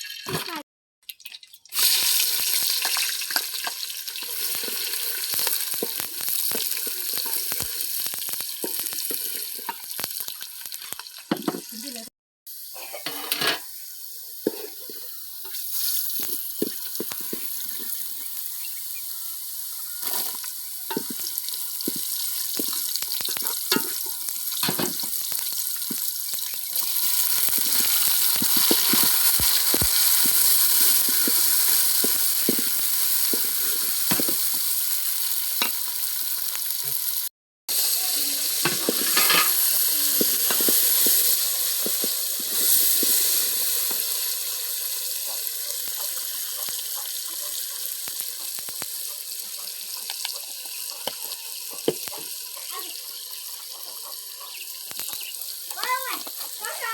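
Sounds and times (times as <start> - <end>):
food sizzling in a pan: 1.7 - 56.9.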